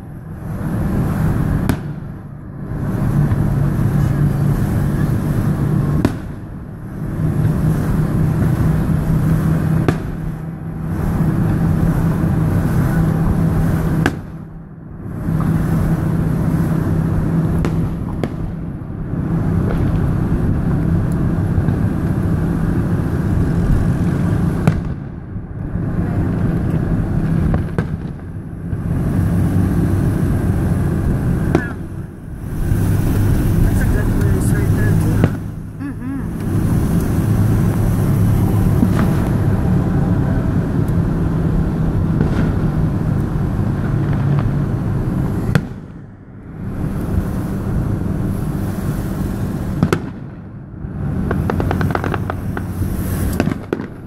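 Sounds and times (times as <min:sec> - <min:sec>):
loud low hum: 0:00.0 - 0:54.0
fireworks bursting with sharp bangs: 0:00.6 - 0:02.2, 0:05.4 - 0:08.9, 0:09.7 - 0:11.9, 0:13.9 - 0:14.5, 0:17.5 - 0:18.7, 0:24.1 - 0:25.2, 0:27.1 - 0:29.4, 0:31.0 - 0:36.6, 0:37.5 - 0:39.5, 0:42.0 - 0:44.6, 0:45.3 - 0:46.0, 0:49.5 - 0:50.5, 0:51.1 - 0:54.0.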